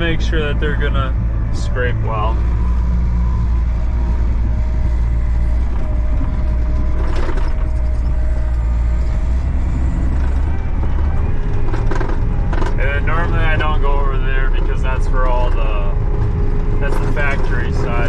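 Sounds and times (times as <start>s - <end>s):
diesel engine rumbling: 0.0s - 18.0s
short rattle: 4.8s - 18.0s.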